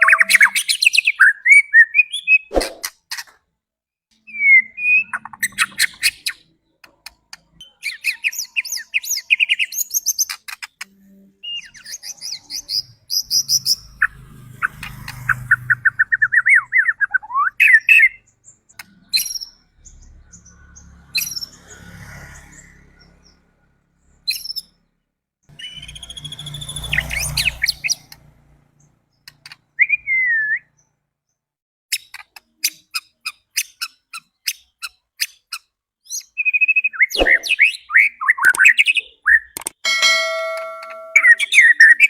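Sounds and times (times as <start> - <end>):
songbird whistling and chattering: 0.0 - 2.9, 4.3 - 6.4, 11.4 - 13.9, 15.7 - 18.2, 25.6 - 28.0, 29.8 - 30.7, 36.1 - 39.6.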